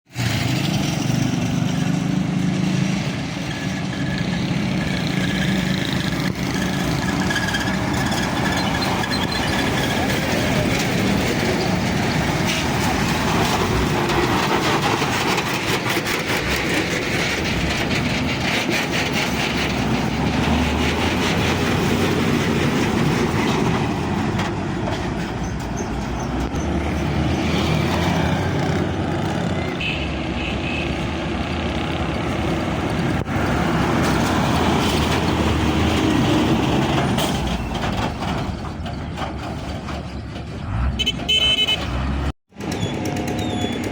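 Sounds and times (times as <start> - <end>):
heavy vehicle engines rumbling: 0.1 - 43.9
rattling clatter: 3.8 - 26.6, 34.0 - 40.6.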